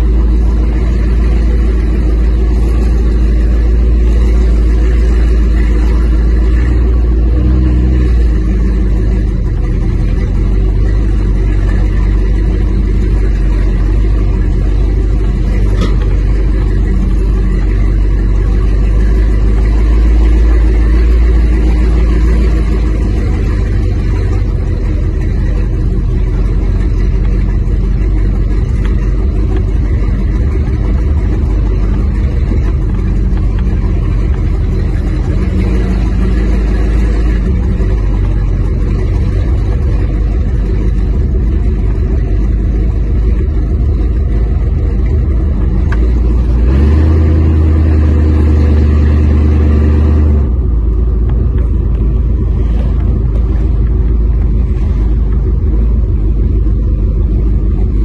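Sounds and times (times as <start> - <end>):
deep car engine running: 0.0 - 58.0.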